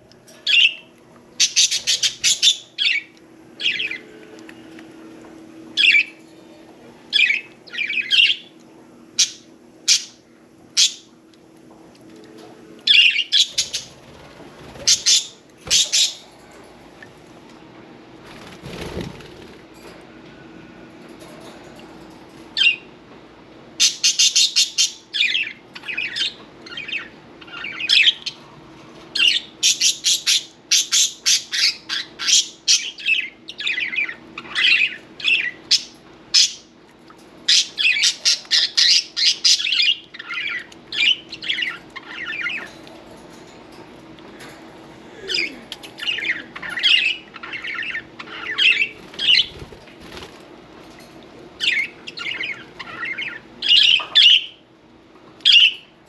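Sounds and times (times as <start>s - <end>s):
budgerigars chirping and squawking: 0.5s - 4.1s, 10.8s - 11.1s, 12.9s - 14.0s, 14.7s - 16.2s, 23.8s - 28.4s, 29.2s - 36.7s, 37.5s - 42.8s, 45.9s - 49.7s, 51.6s - 54.6s, 55.5s - 55.8s.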